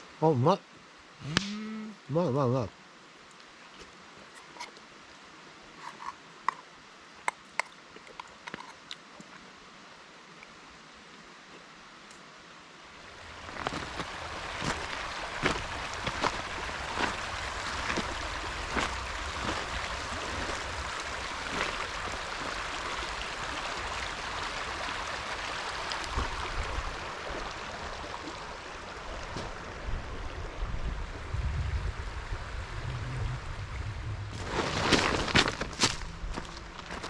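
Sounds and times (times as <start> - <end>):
river water flowing: 0.0 - 37.0
low rumbles: 29.7 - 37.0.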